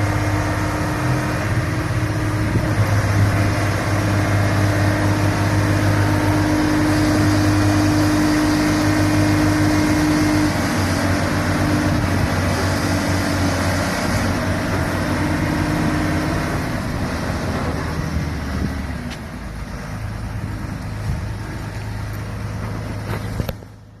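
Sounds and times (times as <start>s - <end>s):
engine droning: 0.0s - 24.0s.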